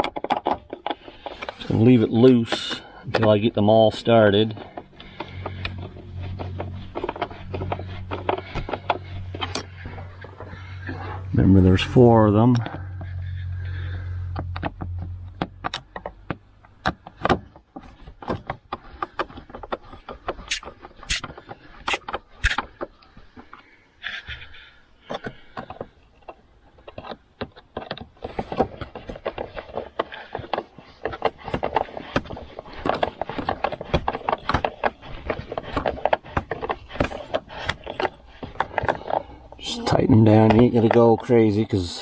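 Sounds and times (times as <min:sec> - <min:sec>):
screws driven into plastic: 0:20.5 - 0:21.2, 0:21.9 - 0:22.6.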